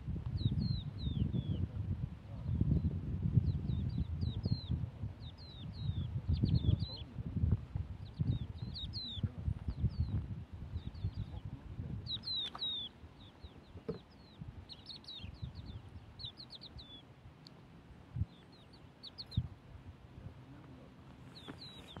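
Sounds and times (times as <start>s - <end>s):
small birds chirping: 0.2s - 22.0s.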